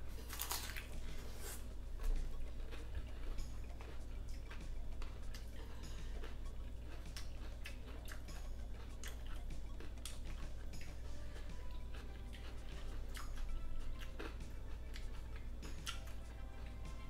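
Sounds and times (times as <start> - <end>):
steady low hum: 0.0 - 17.0
wet chewing mouth clicks: 6.4 - 10.9, 11.9 - 16.2.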